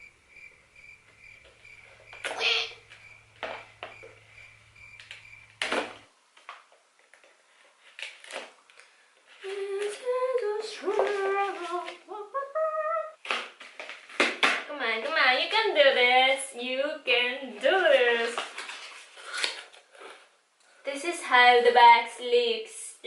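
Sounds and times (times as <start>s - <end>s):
person humming a tune: 9.4s - 13.2s.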